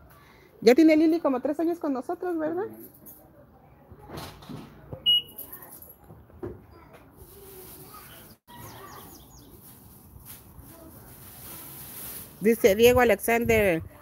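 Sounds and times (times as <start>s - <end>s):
small birds chirping: 7.8s - 9.8s.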